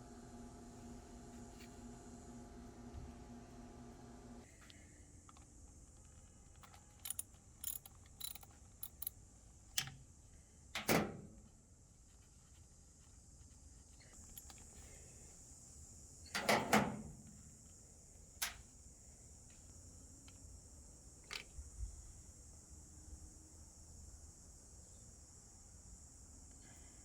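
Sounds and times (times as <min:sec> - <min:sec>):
metal parts clicking and clinking: 0:06.5 - 0:09.1
metal parts clanking: 0:07.0 - 0:09.1.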